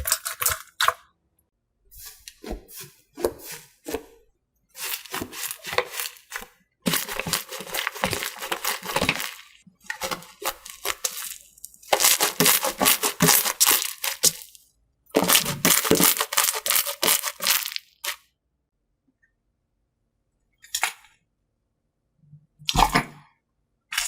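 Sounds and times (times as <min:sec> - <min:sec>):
slime crackling and popping: 0:04.8 - 0:14.6, 0:15.2 - 0:18.2.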